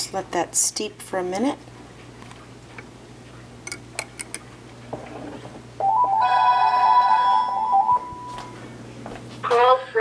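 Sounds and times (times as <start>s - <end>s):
phone ringing two-note trill: 5.8s - 8.4s.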